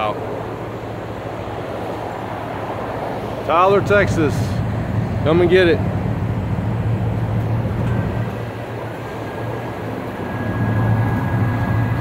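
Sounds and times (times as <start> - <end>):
pickup truck engine idling: 3.2 - 12.0.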